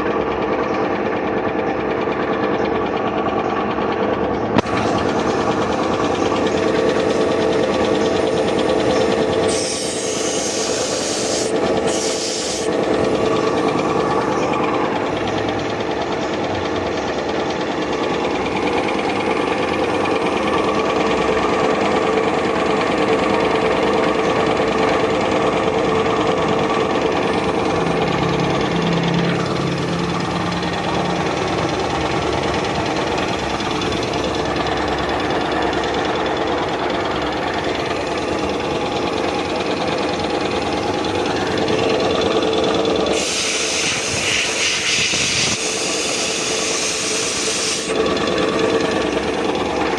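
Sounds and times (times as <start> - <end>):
air compressor clattering: 0.2 - 49.9
air hiss: 4.6 - 13.4, 42.9 - 49.0.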